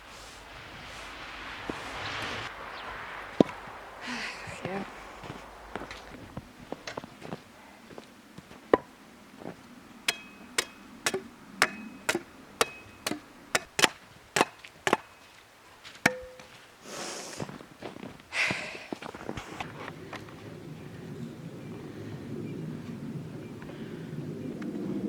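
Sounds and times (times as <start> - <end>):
wood being chopped: 10.1 - 15.2, 16.0 - 16.6.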